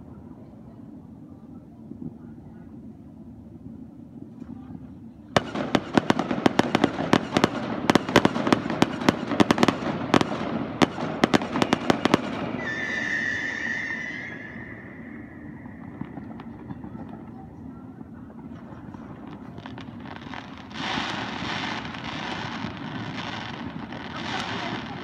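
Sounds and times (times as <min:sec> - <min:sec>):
fireworks bangs and crackles: 0:05.3 - 0:25.0
steady high whistle: 0:11.6 - 0:16.6.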